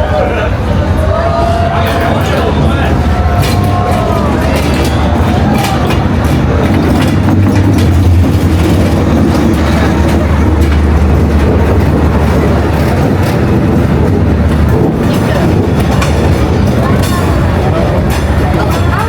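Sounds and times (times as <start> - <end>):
train passing with rail noise: 0.0 - 19.0.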